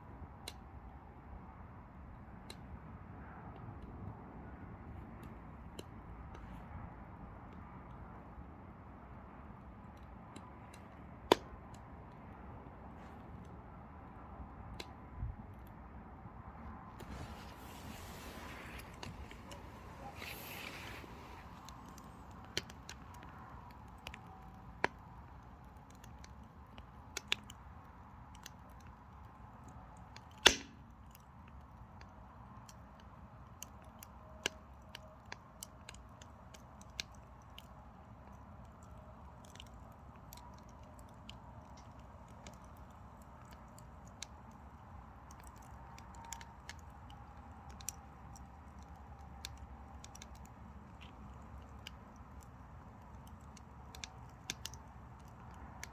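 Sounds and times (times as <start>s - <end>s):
firewood crackling in stove: 0.1s - 15.9s, 16.5s - 55.9s
loud wood pop: 30.4s - 30.8s.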